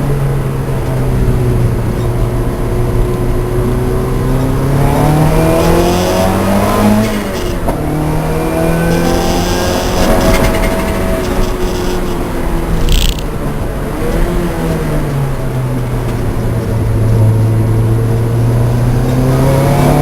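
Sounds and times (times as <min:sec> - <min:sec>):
race car engine running hard: 0:00.0 - 0:20.0.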